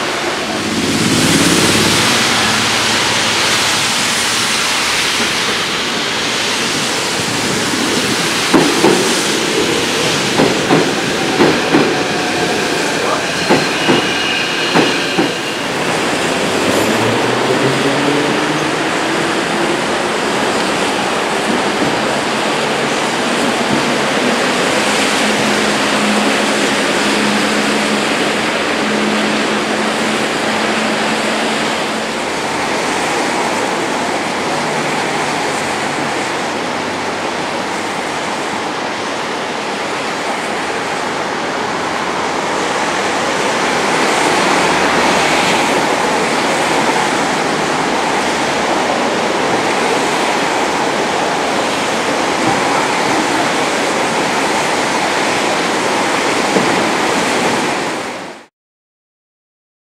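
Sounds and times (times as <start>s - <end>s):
heavy rain pouring: 0.0s - 58.5s.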